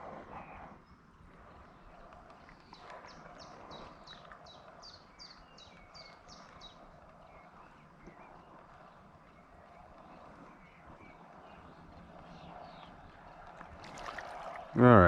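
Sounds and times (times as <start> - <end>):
faint outdoor background noise: 0.0 - 15.0
bird singing: 0.4 - 15.0.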